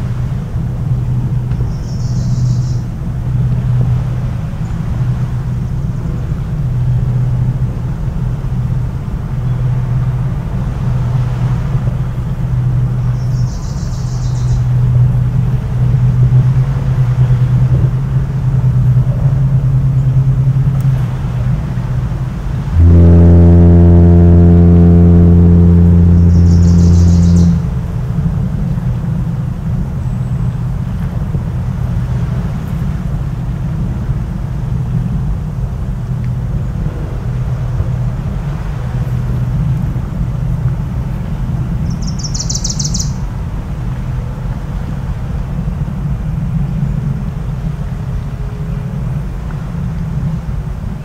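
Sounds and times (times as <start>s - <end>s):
continuous low rumble: 0.0s - 51.0s
foghorn blast: 14.3s - 29.8s, 36.0s - 41.8s.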